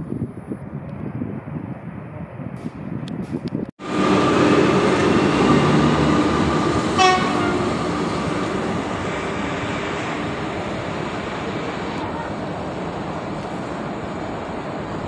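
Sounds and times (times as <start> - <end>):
train wheels rumbling on rails: 2.5 - 15.0
running gear whine: 3.8 - 12.1.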